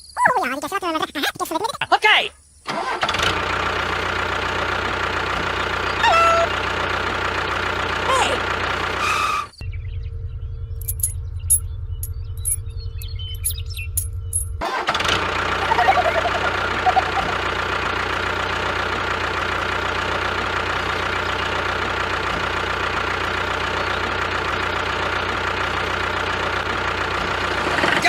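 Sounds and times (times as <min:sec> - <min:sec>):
engine running steadily: 0:02.7 - 0:28.0
low hum: 0:09.5 - 0:14.6.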